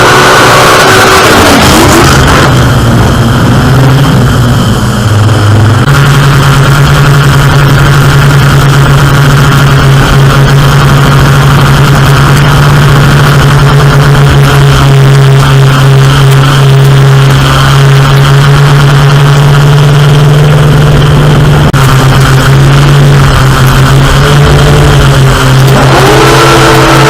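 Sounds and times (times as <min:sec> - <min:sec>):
airboat engine and propeller: 0:00.0 - 0:27.0.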